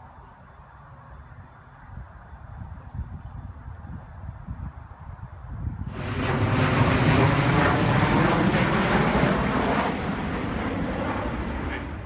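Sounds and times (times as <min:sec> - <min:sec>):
aircraft flying overhead: 0:05.8 - 0:12.0.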